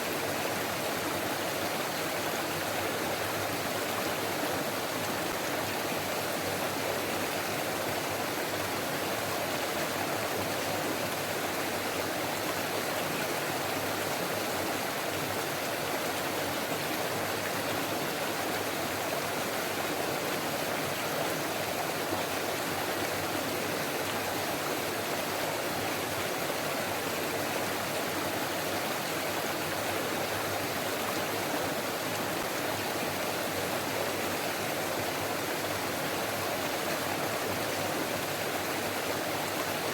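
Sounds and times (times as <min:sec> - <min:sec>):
stream flowing and babbling: 0:00.0 - 0:39.9.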